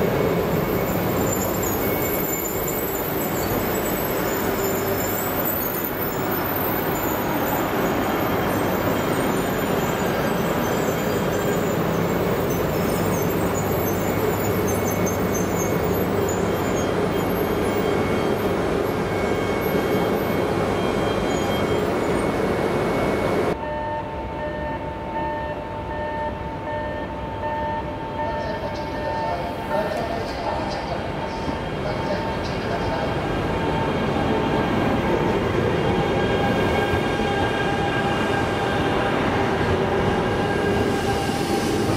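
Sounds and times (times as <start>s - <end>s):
steady train tones: 0.0s - 41.9s
train wheels rumbling: 28.2s - 41.9s.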